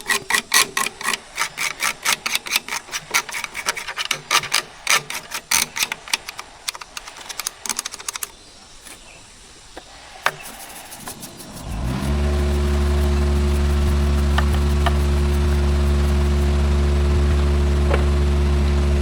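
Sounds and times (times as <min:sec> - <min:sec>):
sharp mechanical clicks: 0:00.0 - 0:09.0.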